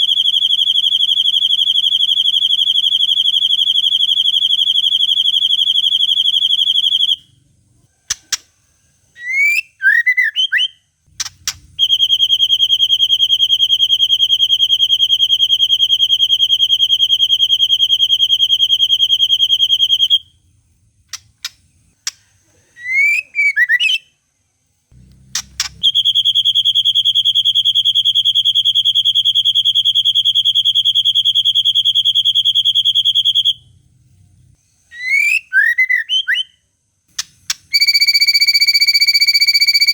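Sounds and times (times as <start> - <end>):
bird whistled gliding phrases: 9.2 - 22.0, 22.6 - 24.1, 25.4 - 33.8, 34.4 - 36.6
sharp bird clicks: 11.1 - 11.7, 21.1 - 22.3, 37.1 - 37.8.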